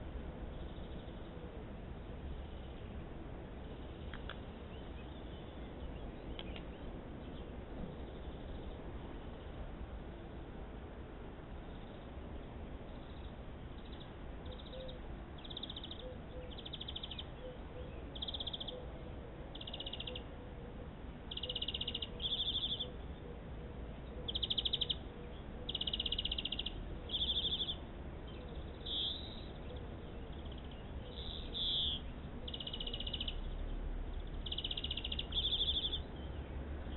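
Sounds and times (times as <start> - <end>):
bird calling in buzzy phrases: 21.3 - 23.4, 34.3 - 36.1.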